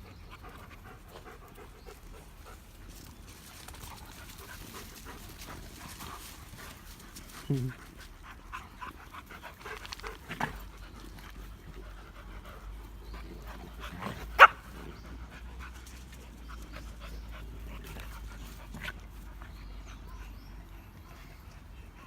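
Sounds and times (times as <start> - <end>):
dogs panting: 0.0 - 22.0
dogs play-fighting: 0.0 - 22.0
dog barking: 14.4 - 14.6.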